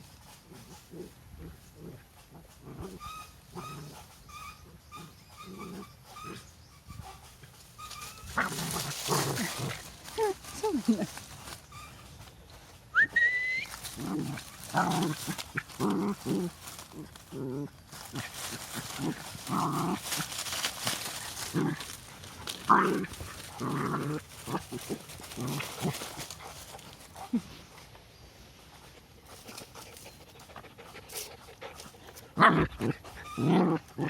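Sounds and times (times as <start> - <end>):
dogs barking and yelping: 0.5 - 12.2.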